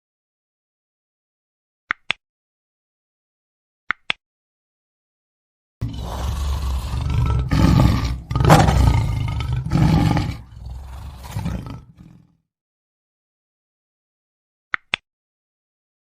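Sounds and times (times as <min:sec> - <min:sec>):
lion roaring: 0:05.8 - 0:12.2.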